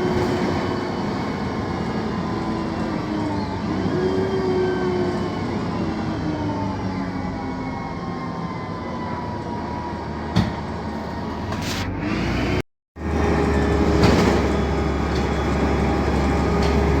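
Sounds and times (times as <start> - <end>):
bus engine hum: 9.4 - 17.0.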